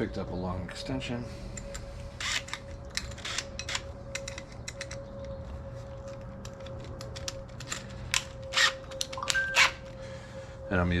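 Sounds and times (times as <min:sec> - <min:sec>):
steady low hum: 0:00.0 - 0:11.0
hand tools clicking and tapping: 0:01.5 - 0:10.0.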